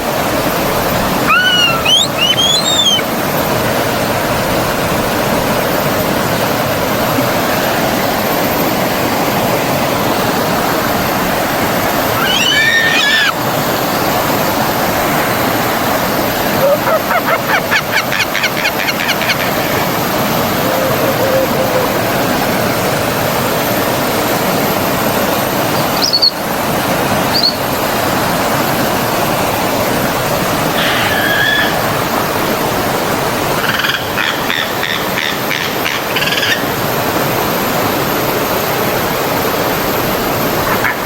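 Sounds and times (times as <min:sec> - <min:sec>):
stream water flowing: 0:00.0 - 0:41.0
birds calling: 0:01.2 - 0:03.2, 0:11.9 - 0:13.4, 0:16.4 - 0:22.8, 0:25.7 - 0:26.6, 0:27.2 - 0:27.7, 0:30.7 - 0:32.1, 0:33.6 - 0:36.7.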